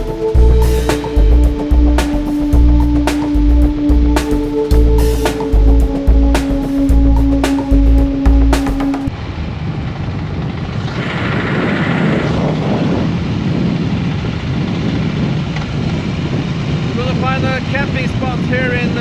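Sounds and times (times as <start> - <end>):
motorcycle engine running: 0.0 - 9.1
music track: 0.0 - 9.1.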